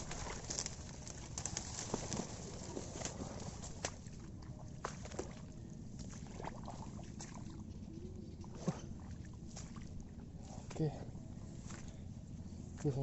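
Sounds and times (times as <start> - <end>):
footsteps squelching in mud: 0.0 - 7.7, 8.5 - 13.0
rustling of brushed vegetation: 0.0 - 7.7, 8.6 - 13.0.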